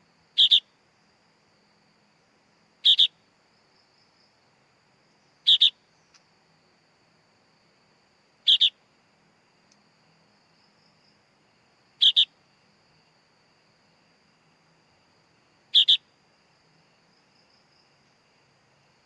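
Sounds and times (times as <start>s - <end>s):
bird chick double chirps: 0.4s - 0.7s, 2.8s - 3.2s, 5.4s - 5.8s, 8.5s - 8.8s, 12.0s - 12.3s, 15.7s - 16.1s.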